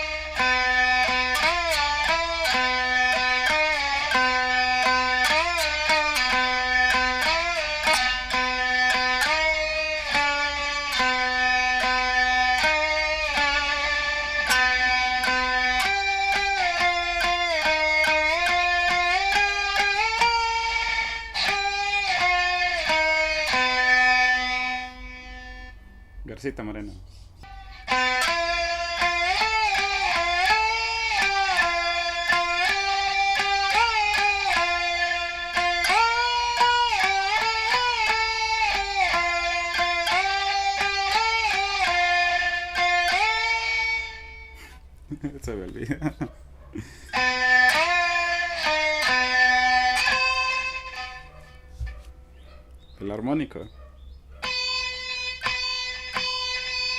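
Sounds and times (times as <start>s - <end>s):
plucked single string sliding: 0.0s - 25.8s, 27.1s - 44.7s, 47.0s - 52.1s.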